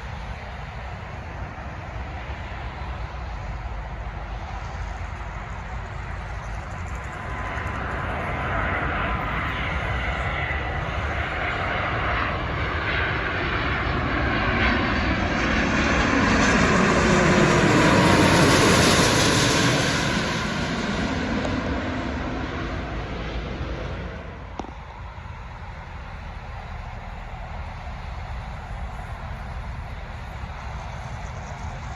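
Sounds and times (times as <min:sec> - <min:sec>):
jet airliner passing: 0:00.0 - 0:31.9
engine whine dropping in pitch: 0:14.7 - 0:31.9.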